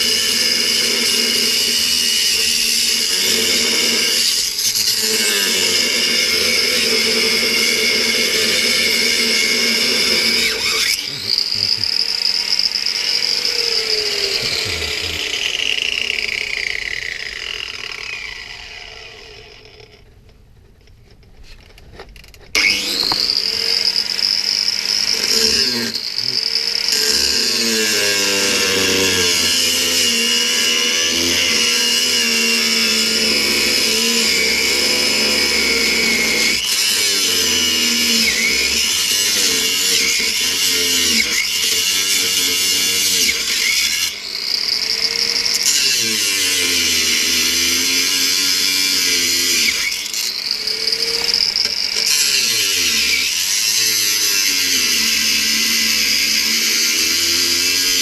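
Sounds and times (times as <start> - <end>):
angle grinder cutting steel: 0.0 - 20.1, 22.5 - 58.0.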